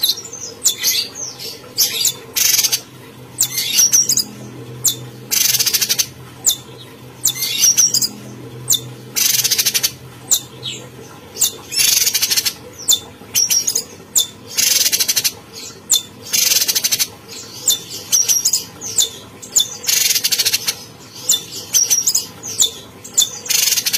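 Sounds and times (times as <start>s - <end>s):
songbird singing: 0.0s - 23.9s.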